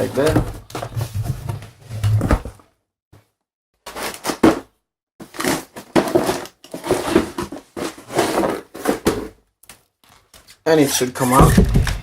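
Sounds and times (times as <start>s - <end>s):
cardboard box scraping and crinkling: 0.0s - 2.6s, 5.3s - 9.3s.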